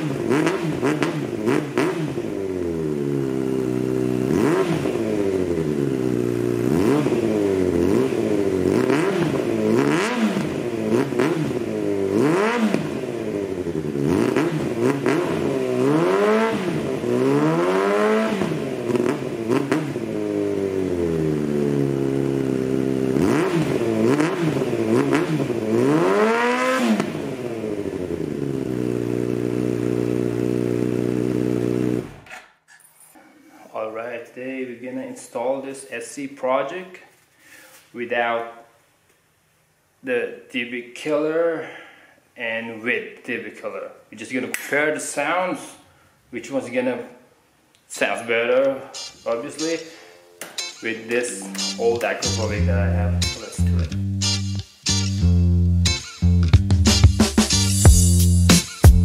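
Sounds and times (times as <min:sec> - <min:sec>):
motorcycle engine idling and revving: 0:00.0 - 0:32.3.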